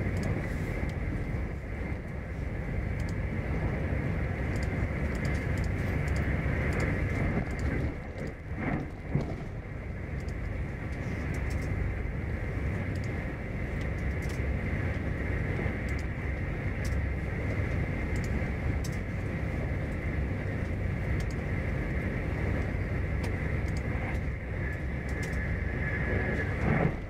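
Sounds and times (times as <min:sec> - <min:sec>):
wheels rumbling on rail: 0:00.0 - 0:27.0
faint clicks: 0:02.9 - 0:03.2, 0:04.4 - 0:09.3, 0:10.1 - 0:11.8, 0:12.9 - 0:13.2, 0:13.8 - 0:16.1, 0:16.8 - 0:19.1, 0:20.6 - 0:21.4, 0:22.5 - 0:25.5.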